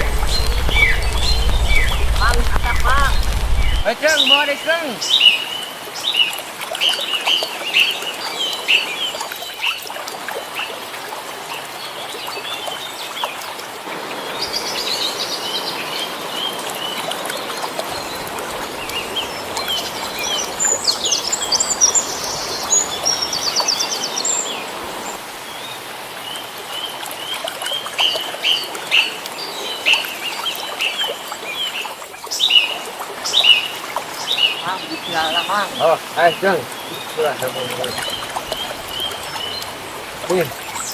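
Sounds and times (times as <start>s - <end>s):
steady hiss: 0.0s - 4.7s
small birds chirping: 0.0s - 9.8s, 14.2s - 40.9s.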